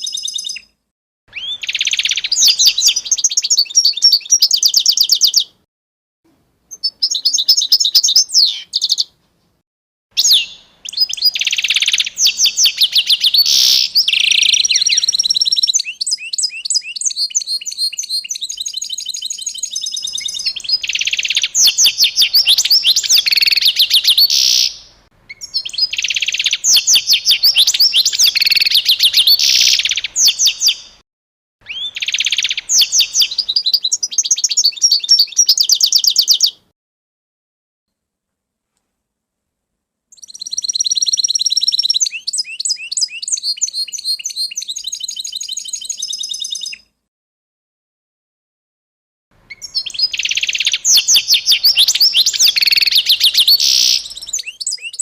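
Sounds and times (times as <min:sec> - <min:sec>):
songbird singing: 0:00.0 - 0:05.7, 0:06.3 - 0:09.2, 0:10.2 - 0:31.0, 0:31.6 - 0:36.7, 0:40.1 - 0:47.0, 0:49.4 - 0:55.0.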